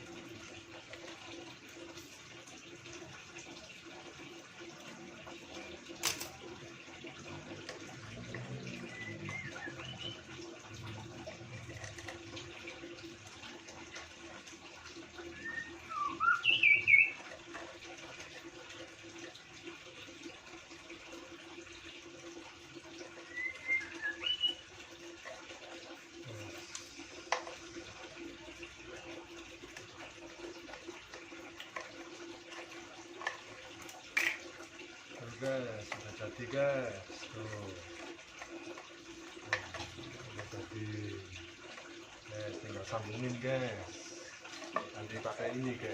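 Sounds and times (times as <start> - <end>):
bird chirping: 8.8 - 10.2, 15.4 - 17.2, 23.3 - 24.6
background hiss and hum: 26.2 - 27.9.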